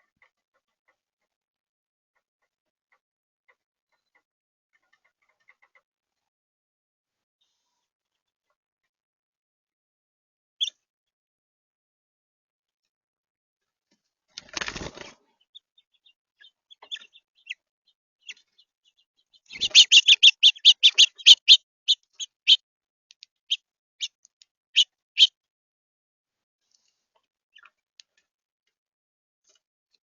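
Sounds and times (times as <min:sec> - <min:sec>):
wings fluttering: 0:14.4 - 0:15.4, 0:19.5 - 0:21.6
faint bird chirps: 0:15.2 - 0:22.6
sharp high bird calls: 0:19.4 - 0:22.6.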